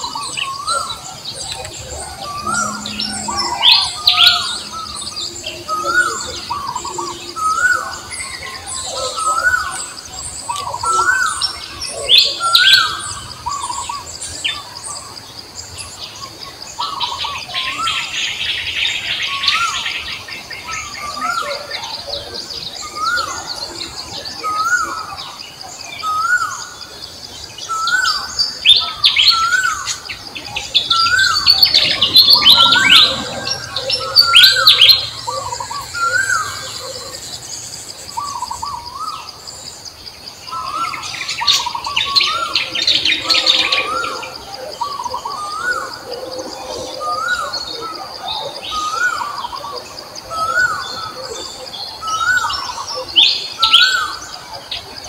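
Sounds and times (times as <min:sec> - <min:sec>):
birds chirping: 0:00.0 - 0:55.0
bird repeating rising falling note: 0:00.9 - 0:08.6
steady high buzz: 0:00.9 - 0:08.9.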